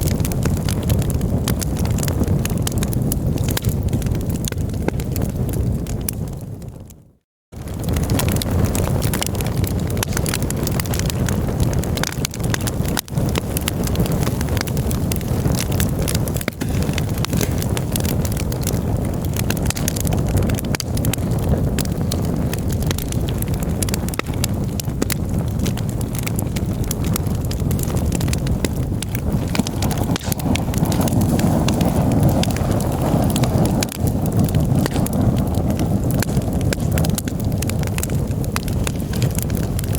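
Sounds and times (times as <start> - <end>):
campfire crackling and popping: 0.0 - 39.9
low rumble: 25.2 - 38.6.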